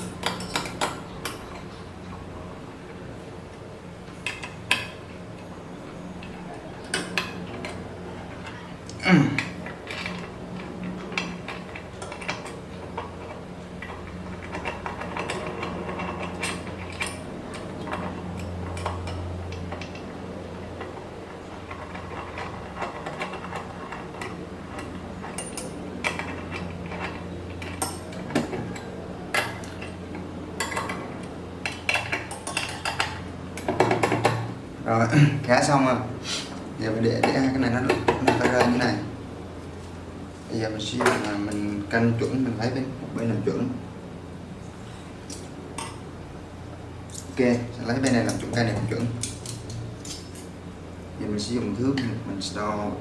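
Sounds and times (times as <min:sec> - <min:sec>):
metal tools clinking: 0:00.0 - 0:01.8, 0:09.4 - 0:20.0, 0:21.7 - 0:34.4, 0:48.0 - 0:50.5
steady low hum: 0:00.0 - 0:53.0.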